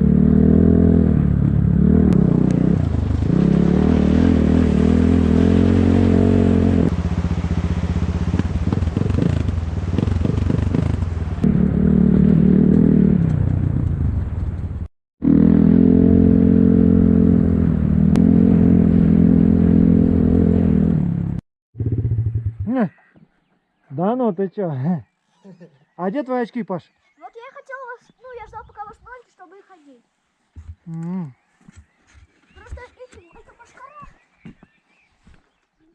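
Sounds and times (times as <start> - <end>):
motorcycle engine under changing throttle: 0.0 - 22.7.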